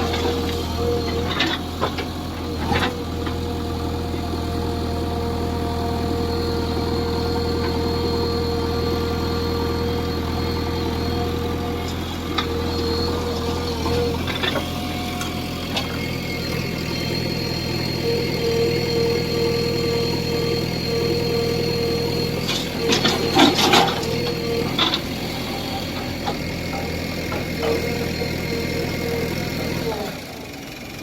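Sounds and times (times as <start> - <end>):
diesel engine running: 0.0 - 31.0
engine whine: 0.0 - 31.0
metal clanks and knocks: 22.5 - 25.0.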